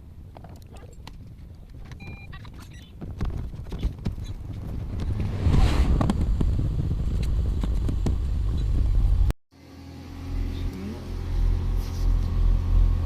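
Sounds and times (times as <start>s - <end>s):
car engine running: 3.7s - 13.0s.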